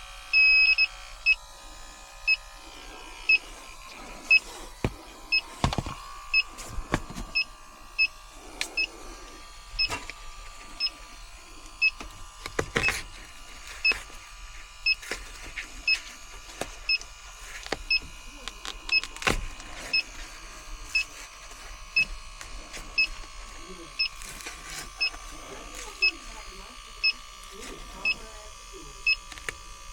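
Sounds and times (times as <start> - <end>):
leak detector high beeps: 0.3 - 1.4, 2.3 - 2.5, 3.2 - 9.0, 10.8 - 11.0, 12.8 - 13.0, 13.8 - 14.2, 14.8 - 15.1, 15.8 - 16.0, 20.9 - 21.2, 23.0 - 24.3, 25.0 - 25.2, 25.8 - 27.2, 27.9 - 28.3, 29.0 - 29.3.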